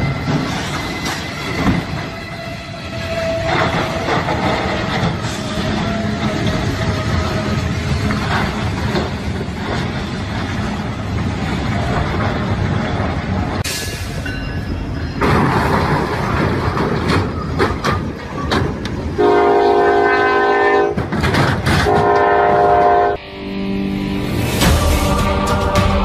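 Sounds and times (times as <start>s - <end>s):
freight train rumbling and clanking: 0.0s - 23.2s, 24.0s - 26.0s
locomotive horn blasts: 19.2s - 21.0s, 21.8s - 23.4s.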